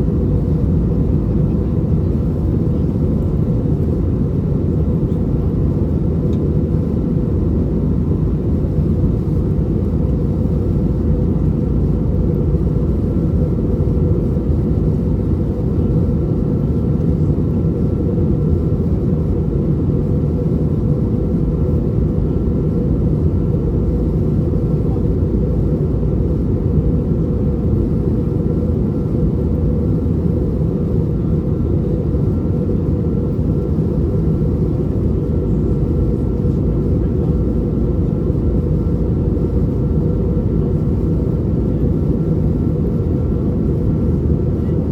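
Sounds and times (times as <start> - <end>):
airplane cabin rumble: 0.0 - 44.9.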